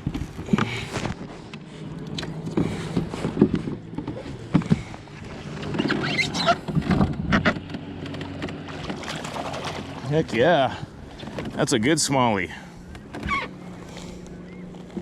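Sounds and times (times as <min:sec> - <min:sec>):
water splashing: 0:08.1 - 0:10.8.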